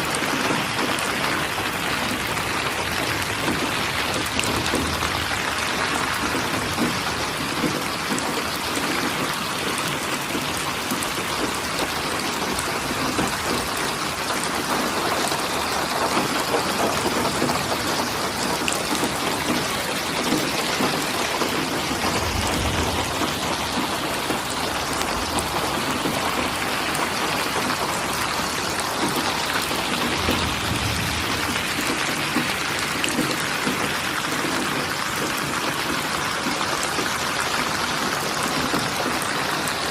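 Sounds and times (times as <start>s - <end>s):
steady rain falling: 0.0s - 39.9s
low rumbles: 21.8s - 26.6s, 30.1s - 32.1s.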